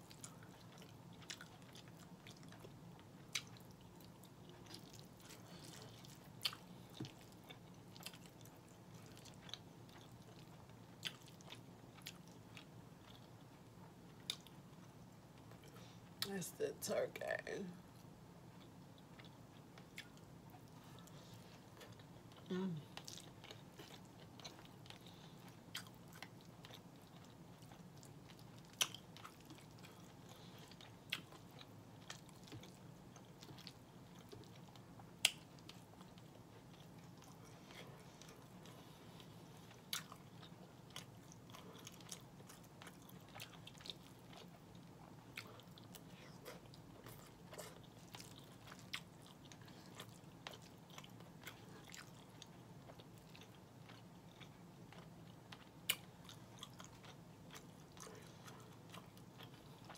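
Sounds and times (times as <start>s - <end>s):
close-up chewing: 0.0s - 16.2s, 17.9s - 59.9s
faint low hum: 0.0s - 59.9s.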